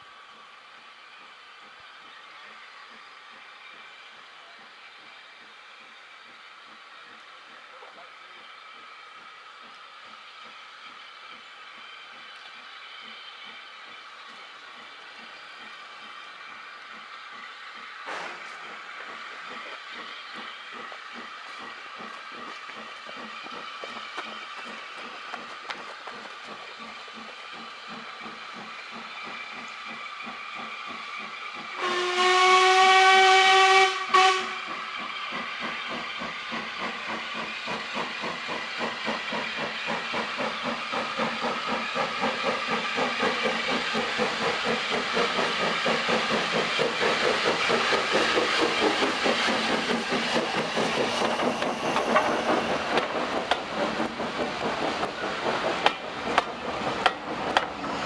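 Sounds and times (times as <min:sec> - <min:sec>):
steam train rhythmic running: 0:00.0 - 0:58.0
steam locomotive whistle: 0:31.8 - 0:34.9.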